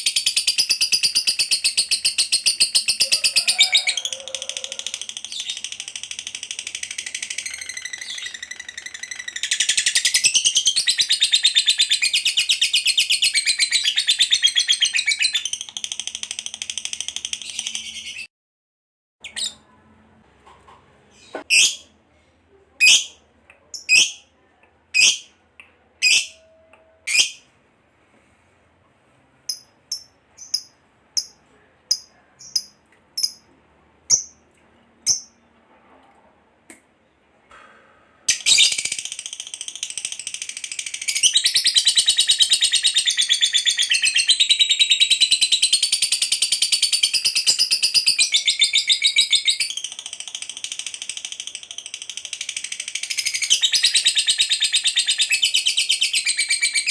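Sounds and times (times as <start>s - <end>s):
bird chirps: 4.6s - 18.3s.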